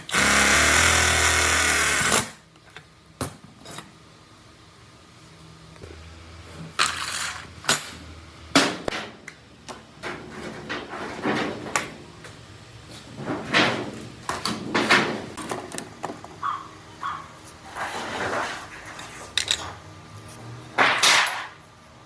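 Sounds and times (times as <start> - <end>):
knocks and clanks on metal: 8.5 - 12.1, 13.1 - 16.2
metal scraping: 17.6 - 19.2.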